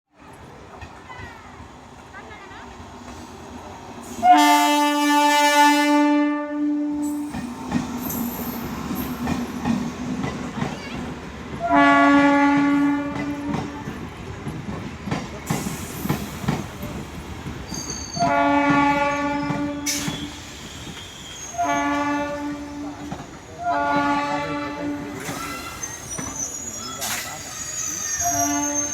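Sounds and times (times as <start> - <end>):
train rumbling on rails: 0.2 - 28.9
train horn blasts: 4.2 - 7.2, 11.6 - 13.7, 18.2 - 20.0, 21.5 - 23.0, 23.6 - 25.2, 28.2 - 28.9.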